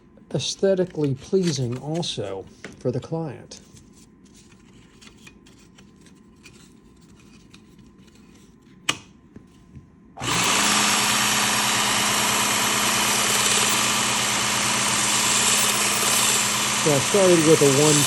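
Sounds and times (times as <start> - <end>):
belt sharpener motor hum: 10.2 - 18.0
sanding belt hiss: 10.2 - 18.0.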